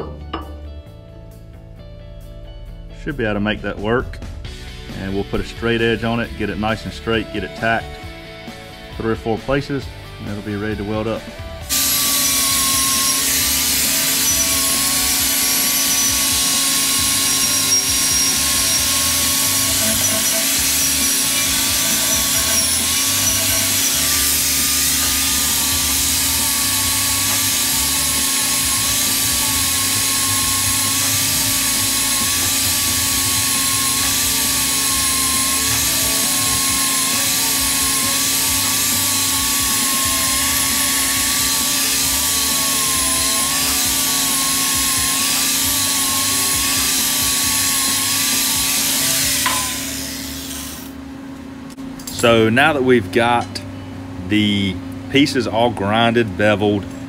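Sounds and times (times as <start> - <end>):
angle grinder wire wheel on steel: 11.7 - 51.0.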